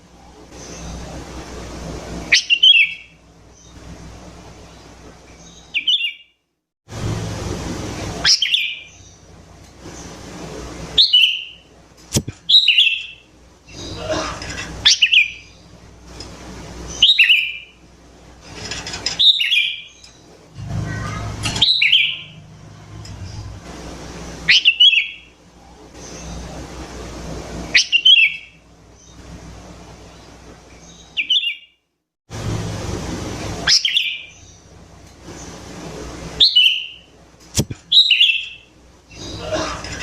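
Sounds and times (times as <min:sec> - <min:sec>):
bulbul calling: 0:20.9 - 0:22.4.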